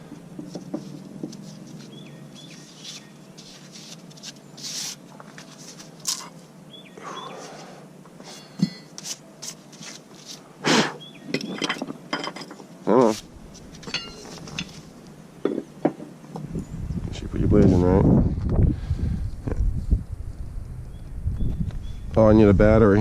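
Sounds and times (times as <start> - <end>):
metal tools clicking and clanking: 11.3 - 12.6, 13.8 - 14.8.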